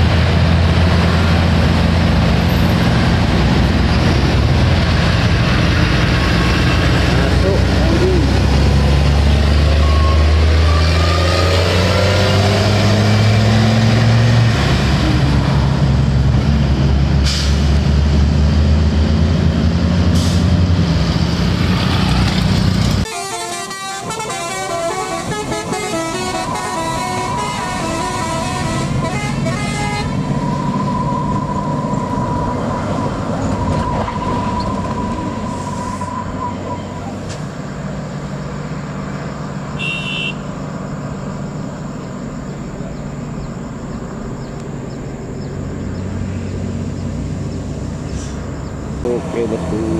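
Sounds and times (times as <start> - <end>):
diesel truck engine labouring: 0.0 - 49.9
road noise: 0.0 - 49.9
long steady horn-like tone: 23.1 - 30.2, 39.8 - 40.5
vehicle horns tooting: 23.1 - 30.2, 39.8 - 40.6.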